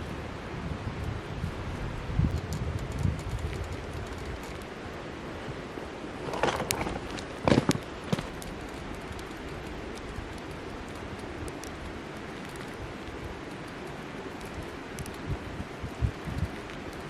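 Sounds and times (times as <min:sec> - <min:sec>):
outdoor wind: 0:00.0 - 0:17.0
knocks and rustles of handling: 0:06.2 - 0:08.8.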